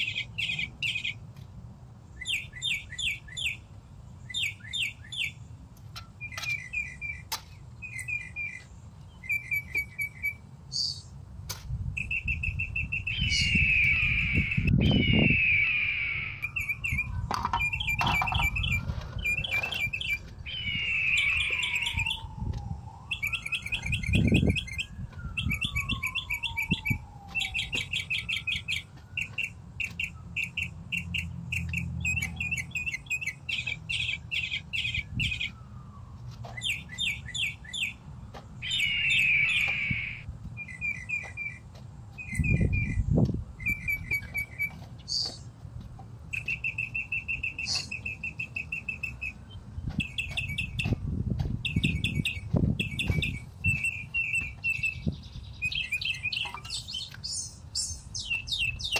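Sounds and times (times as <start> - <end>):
small birds trilling: 12.0 - 41.6, 51.6 - 58.9.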